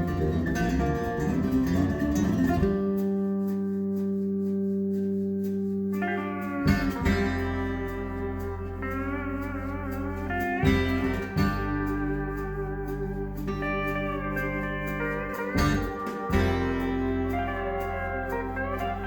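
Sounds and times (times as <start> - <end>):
guitar music over speakers: 0.0 - 19.0.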